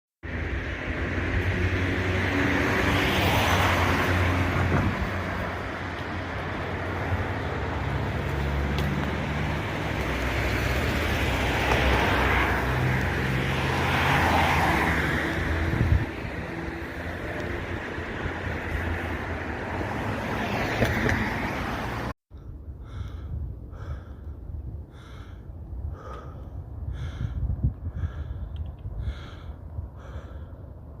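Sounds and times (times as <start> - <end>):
vehicle engine humming: 0.2 - 22.1.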